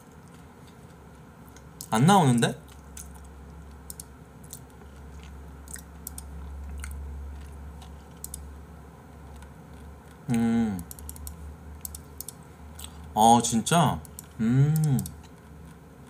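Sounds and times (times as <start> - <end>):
close chewing and mouth sounds: 0.0 - 1.9, 2.6 - 8.5, 9.1 - 10.5, 12.7 - 13.2, 14.1 - 16.0
low steady hum: 0.0 - 16.0
soft clicks: 3.9 - 4.1
person humming: 10.3 - 11.0, 14.4 - 15.2.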